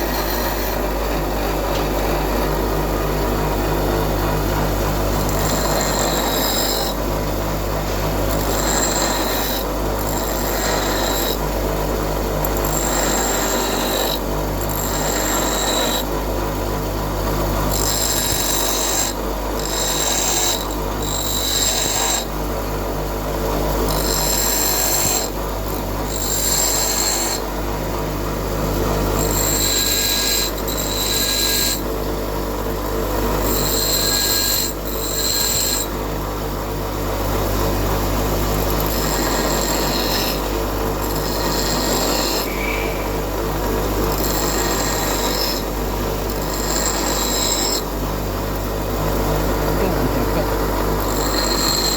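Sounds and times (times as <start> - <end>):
electric grinder motor hum: 48.7 - 51.9.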